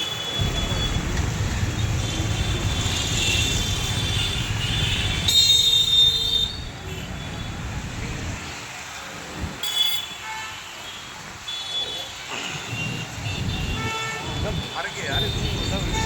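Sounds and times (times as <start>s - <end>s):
train rumbling on rails: 0.4s - 6.8s, 13.1s - 16.0s.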